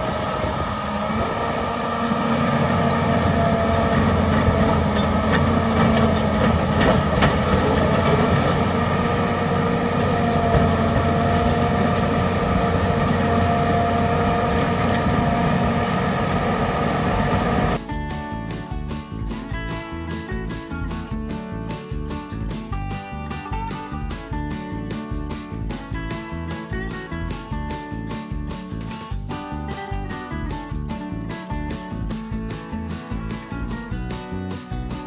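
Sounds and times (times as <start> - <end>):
diesel engine running: 0.0 - 18.6.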